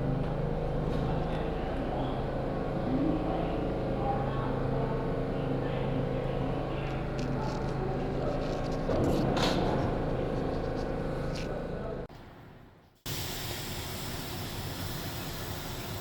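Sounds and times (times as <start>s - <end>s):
subway train running: 0.0s - 12.1s.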